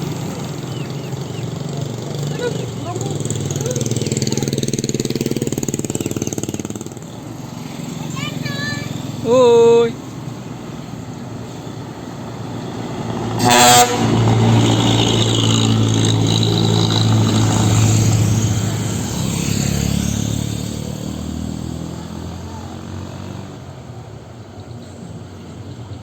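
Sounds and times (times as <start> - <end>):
diesel vehicle passing: 0.0 - 26.0
loud horn blast: 13.4 - 15.7.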